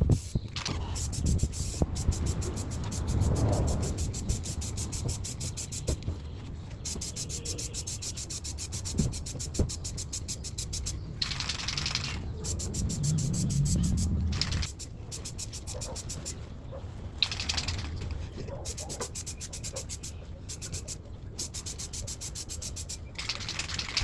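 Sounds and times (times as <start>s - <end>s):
spray paint can hissing: 0.0s - 6.1s, 6.8s - 16.4s, 17.2s - 18.0s, 18.6s - 24.0s
rubbing and handling noise: 0.0s - 24.0s.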